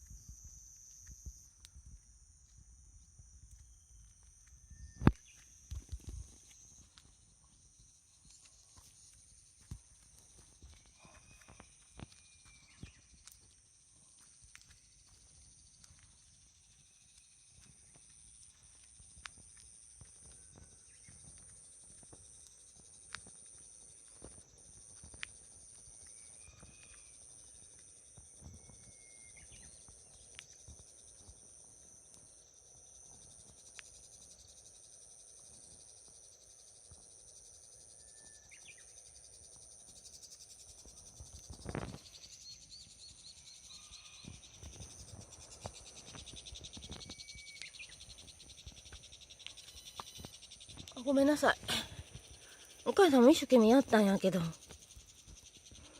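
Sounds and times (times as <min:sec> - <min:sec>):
insects trilling: 0:00.0 - 0:55.9
bird chirps: 0:45.2 - 0:48.5, 0:49.1 - 0:53.0.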